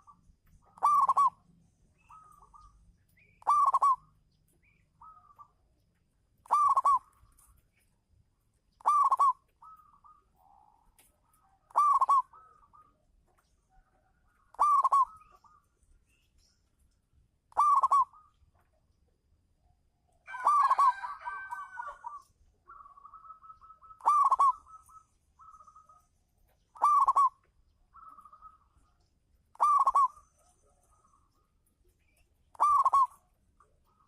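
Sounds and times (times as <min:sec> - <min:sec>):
dove cooing: 0:00.0 - 0:01.4, 0:03.4 - 0:04.1, 0:06.4 - 0:07.5, 0:08.8 - 0:13.1, 0:13.8 - 0:15.6, 0:17.5 - 0:18.3, 0:20.3 - 0:26.0, 0:26.8 - 0:30.9, 0:32.5 - 0:34.0.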